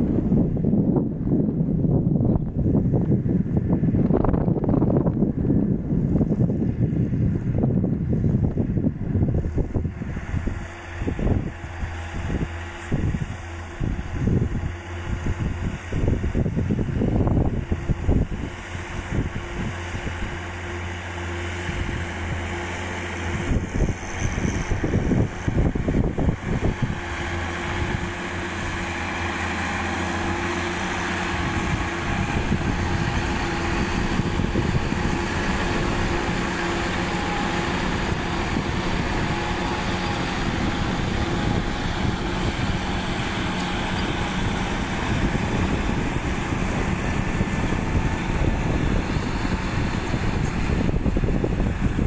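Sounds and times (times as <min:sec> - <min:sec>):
tractor diesel engine under load: 0:00.0 - 0:52.0.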